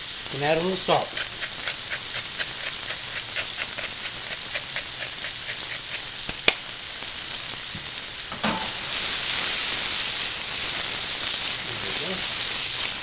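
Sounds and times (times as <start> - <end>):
food sizzling in a pan: 0.0 - 13.0
pan being flipped: 8.3 - 8.8.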